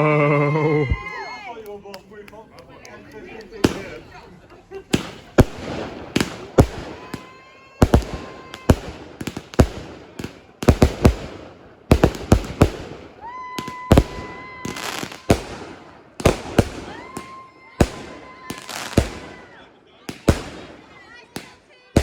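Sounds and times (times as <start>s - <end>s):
fireworks bangs and crackles: 2.4s - 22.0s
whistling firework: 4.9s - 21.6s.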